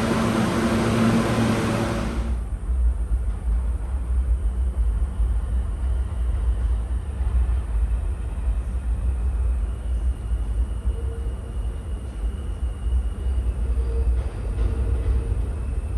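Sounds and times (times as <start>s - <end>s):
subway train rumble: 0.0s - 15.9s.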